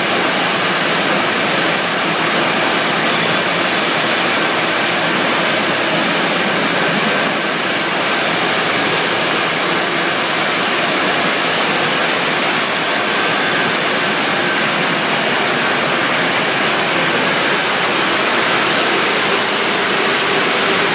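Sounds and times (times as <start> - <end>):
production line machinery rushing: 0.0 - 20.9.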